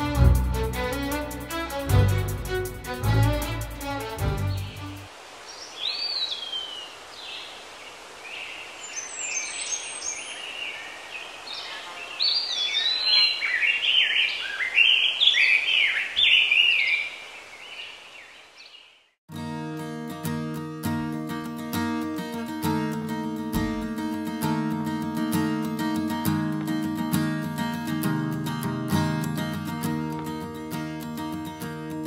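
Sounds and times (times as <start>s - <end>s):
violin: 0.0s - 5.1s
steady outdoor hiss: 0.0s - 32.0s
birds singing and chirping: 4.4s - 19.1s.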